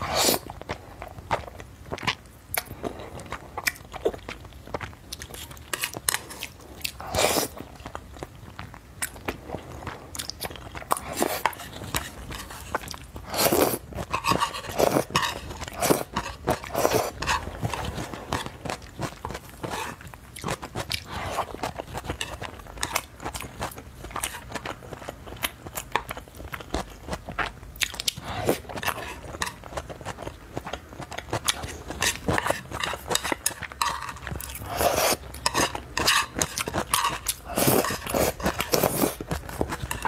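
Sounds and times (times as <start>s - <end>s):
chewing with wet mouth sounds: 0.0s - 40.0s.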